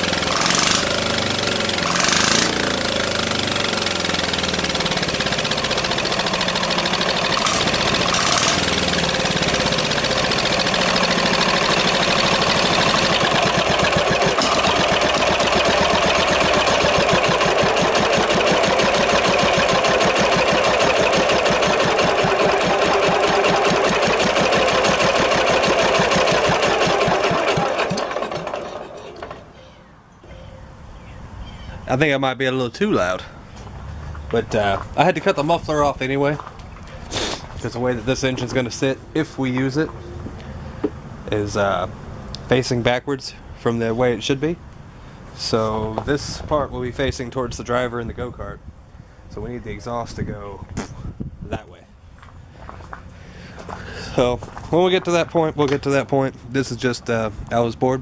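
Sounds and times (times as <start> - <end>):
loud diesel engine running: 0.0 - 29.7.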